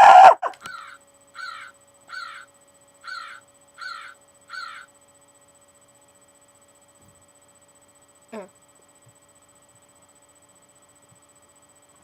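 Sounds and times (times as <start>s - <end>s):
crow cawing: 0.0s - 4.9s.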